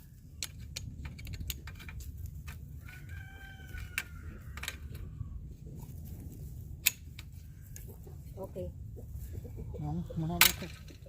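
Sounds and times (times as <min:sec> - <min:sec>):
fencing work clicks and knocks: 0:00.4 - 0:03.2
rooster crowing: 0:02.8 - 0:05.3.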